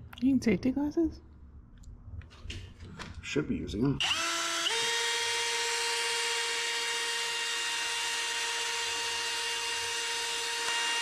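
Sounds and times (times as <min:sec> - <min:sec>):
electric drill whining: 0:04.0 - 0:11.0.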